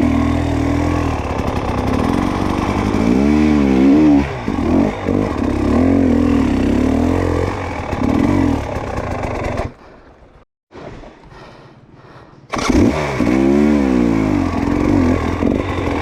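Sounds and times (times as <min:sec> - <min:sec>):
dirt bike engine revving: 0:00.0 - 0:10.4, 0:12.5 - 0:16.0.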